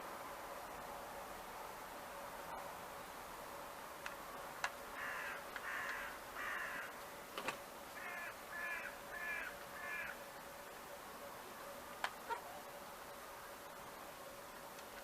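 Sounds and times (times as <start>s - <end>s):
crow cawing: 5.0s - 7.0s, 8.0s - 10.2s.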